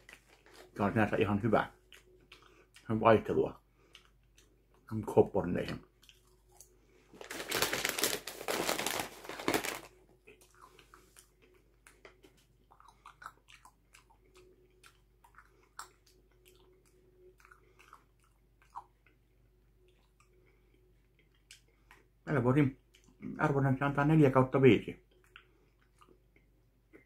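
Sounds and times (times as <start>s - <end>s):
chewing clicks and mouth sounds: 1.6s - 6.9s, 10.1s - 23.4s, 24.9s - 27.0s
crunching popcorn: 5.6s - 18.9s.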